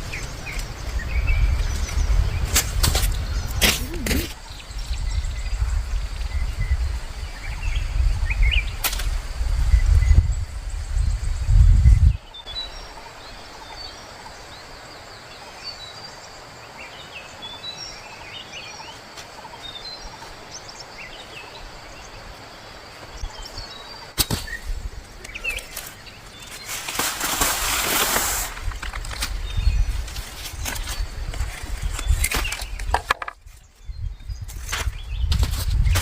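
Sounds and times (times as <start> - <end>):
small birds chirping: 0.0 - 8.9, 9.7 - 36.0.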